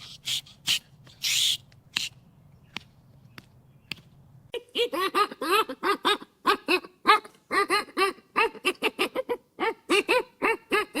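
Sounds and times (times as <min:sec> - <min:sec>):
dog yapping: 0:05.2 - 0:11.0.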